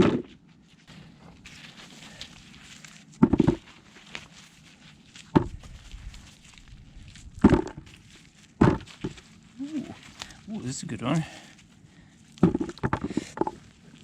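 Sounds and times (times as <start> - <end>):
digging tool thudding into soil: 7.4 - 7.9, 8.6 - 9.1, 12.4 - 13.6.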